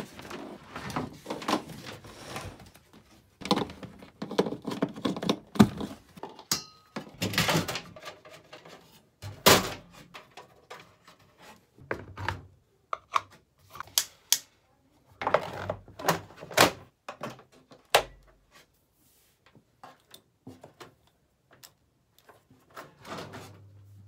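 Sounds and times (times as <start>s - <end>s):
knocks and rattles of handling: 0.0s - 13.9s.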